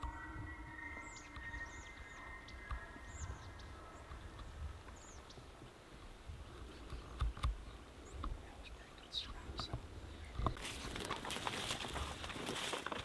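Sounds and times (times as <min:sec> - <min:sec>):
faint high bird chirps: 0:00.0 - 0:04.4
low wind rumble: 0:00.0 - 0:13.0.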